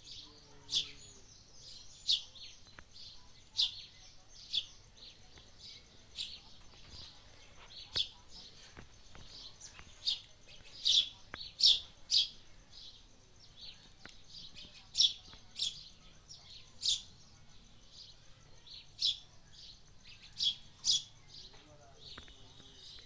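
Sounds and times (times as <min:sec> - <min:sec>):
bird chirping: 0:00.0 - 0:23.0.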